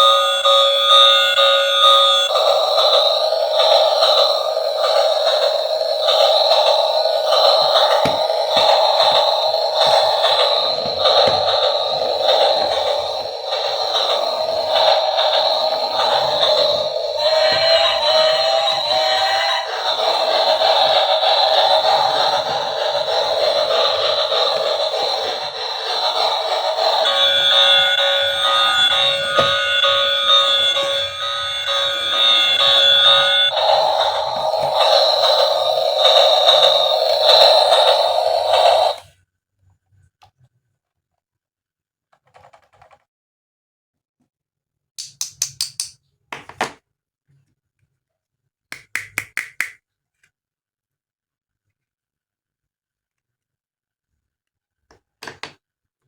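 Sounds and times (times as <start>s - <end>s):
siren-like tones: 0.0s - 39.0s
tinny electronic toy music: 0.0s - 39.1s
plastic toy pieces clicking: 45.0s - 46.0s.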